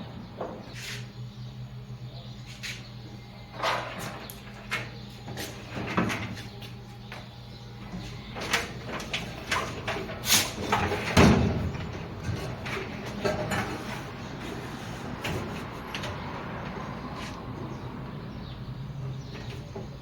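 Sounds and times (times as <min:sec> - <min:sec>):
metal parts knocking and clanking: 0:08.4 - 0:14.0.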